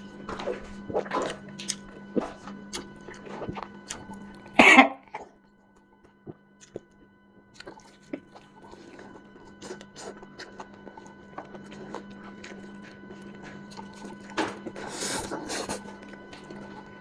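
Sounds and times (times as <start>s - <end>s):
person coughing: 4.5s - 5.2s.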